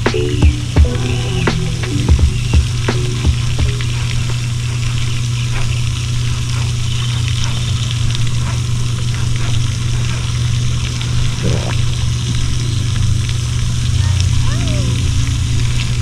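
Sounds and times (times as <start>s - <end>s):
vehicle engine and road noise: 12.2s - 16.0s.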